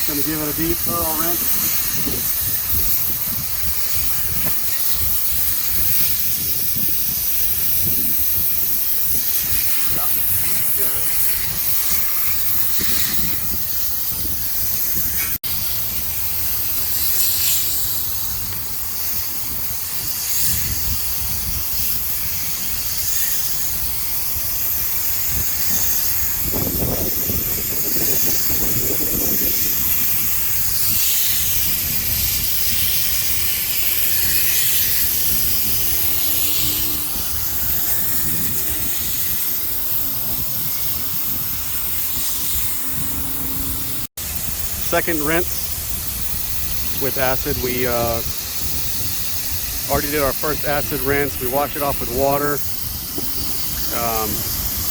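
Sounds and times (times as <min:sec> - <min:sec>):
water spraying onto metal coil: 0:00.0 - 0:54.9.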